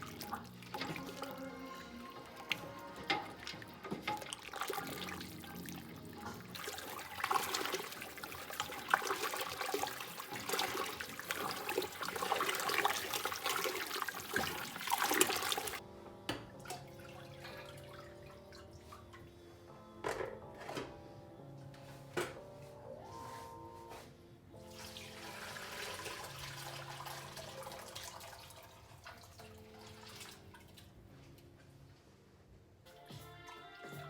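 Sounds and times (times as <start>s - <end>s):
water pouring into a pot: 0.0s - 15.8s, 24.6s - 30.9s
quiet background music: 0.0s - 34.0s.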